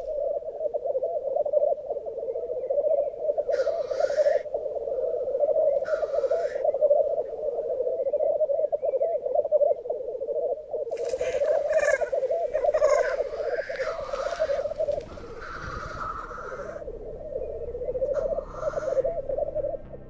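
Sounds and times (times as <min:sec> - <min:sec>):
grouse bubbling cooing chorus: 0:00.0 - 0:20.0
grouse hissing sneeze calls: 0:03.5 - 0:04.5, 0:05.8 - 0:06.8, 0:11.0 - 0:16.9, 0:18.1 - 0:19.3.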